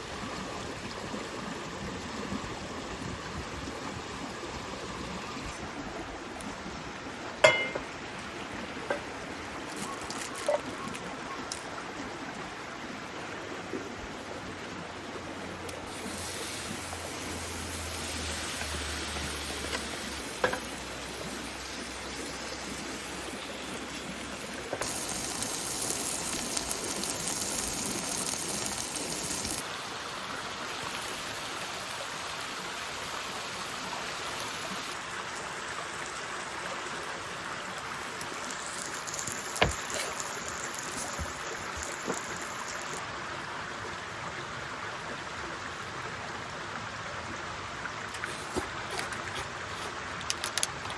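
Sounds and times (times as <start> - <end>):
water hissing: 15.7 - 35.0, 37.6 - 43.1, 48.0 - 50.9.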